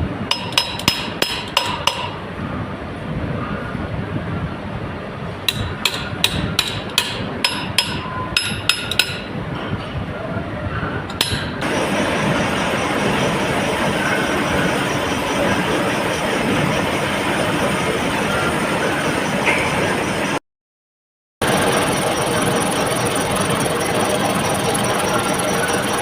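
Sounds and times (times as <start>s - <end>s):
loud steady machine noise: 0.0s - 20.4s, 21.4s - 26.0s
low machine hum: 0.0s - 20.4s, 21.4s - 26.0s
hammer tapping on steel: 0.3s - 2.2s, 5.5s - 9.3s, 11.1s - 11.6s.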